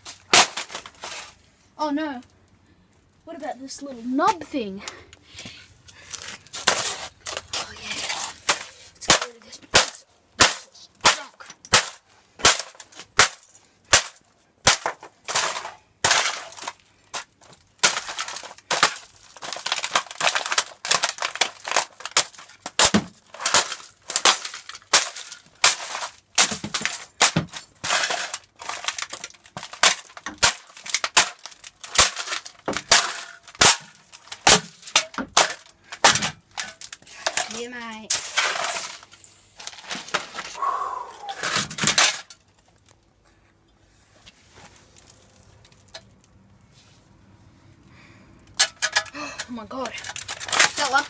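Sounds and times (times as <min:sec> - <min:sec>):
cracking and breaking: 0:00.0 - 0:01.4, 0:06.1 - 0:40.6, 0:41.4 - 0:43.1, 0:48.4 - 0:49.2, 0:49.8 - 0:51.0
laptop being smashed: 0:00.0 - 0:01.4, 0:06.5 - 0:40.6, 0:41.4 - 0:42.5, 0:50.0 - 0:51.0.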